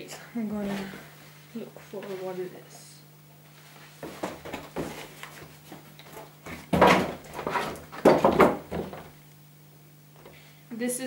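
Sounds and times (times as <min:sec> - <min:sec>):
rustling and rubbing handling noise: 0:00.5 - 0:09.2.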